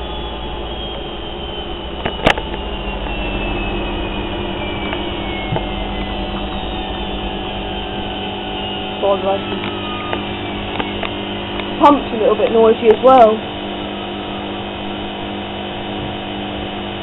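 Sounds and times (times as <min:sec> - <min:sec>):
washing machine spin whine: 0:00.0 - 0:17.0.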